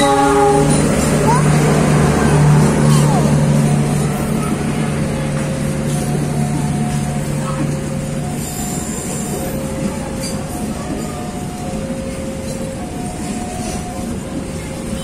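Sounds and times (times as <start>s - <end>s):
train wheels on rails: 0.0s - 15.0s
two-tone crossing alarm: 5.5s - 14.8s.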